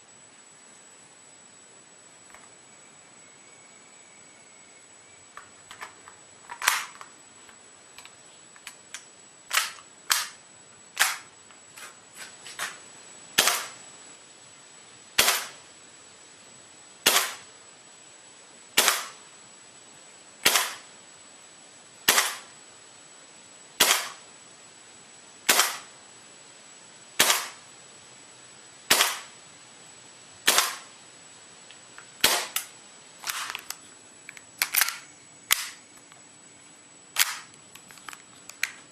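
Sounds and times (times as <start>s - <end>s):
quiet irregular clicks: 5.3s - 10.4s, 37.2s - 38.9s
airsoft pistol shots: 9.5s - 10.4s, 11.0s - 11.3s, 13.4s - 13.8s, 15.2s - 15.6s, 17.0s - 17.5s, 18.8s - 19.2s, 20.4s - 20.9s, 22.1s - 22.5s, 23.8s - 24.2s, 25.5s - 25.9s, 27.2s - 27.6s, 28.9s - 29.4s, 30.4s - 30.9s, 32.2s - 32.7s, 37.2s - 37.5s.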